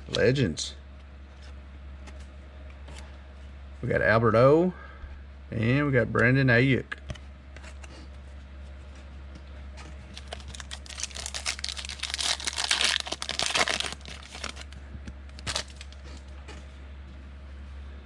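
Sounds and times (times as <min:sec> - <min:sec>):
foil wrapper tearing and crinkling: 0:10.1 - 0:16.2.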